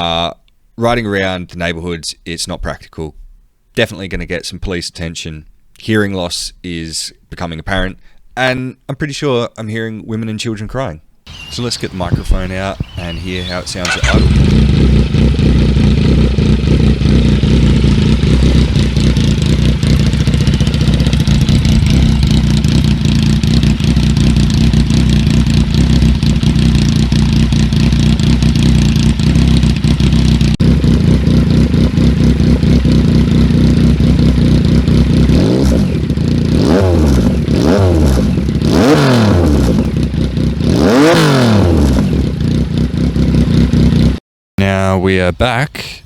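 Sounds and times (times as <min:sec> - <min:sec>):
motorcycle engine idling and revving: 0:11.3 - 0:44.2.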